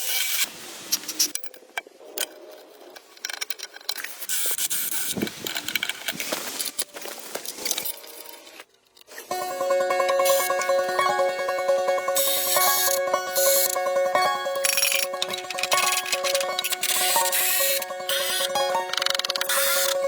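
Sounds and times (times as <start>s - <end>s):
plucked string music: 9.3s - 20.0s.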